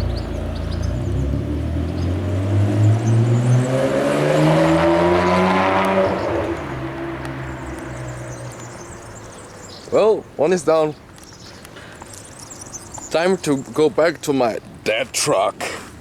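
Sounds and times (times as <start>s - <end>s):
car engine accelerating: 0.0s - 9.8s.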